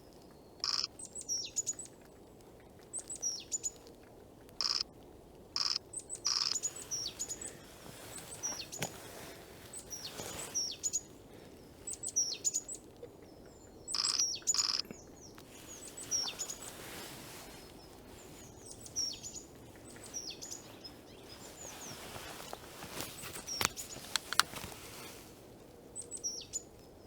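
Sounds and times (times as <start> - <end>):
small songbirds chirping: 0.0 - 2.0, 2.8 - 3.9, 4.6 - 4.8, 5.6 - 25.3, 25.9 - 27.0
sharp clicks: 0.6 - 0.9, 4.5 - 4.9, 5.6 - 6.6, 14.0 - 14.9.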